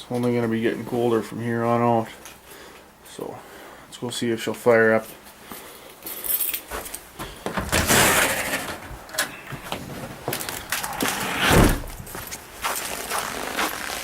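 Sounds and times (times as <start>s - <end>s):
rustling: 6.0s - 14.0s
door opening and shutting: 7.5s - 12.4s
heavy thump: 9.8s - 12.4s.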